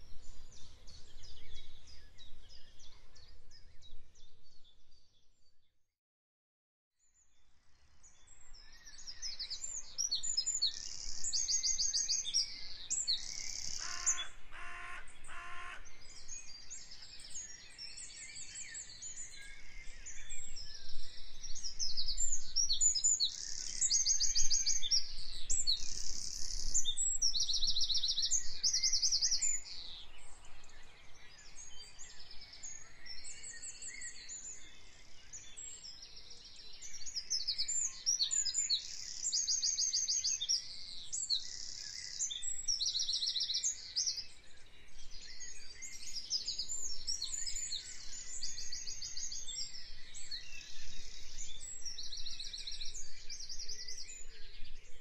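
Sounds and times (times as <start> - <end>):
small birds chirping and trilling: 7.0 - 55.0
low rapidly repeated bird call: 13.6 - 15.9.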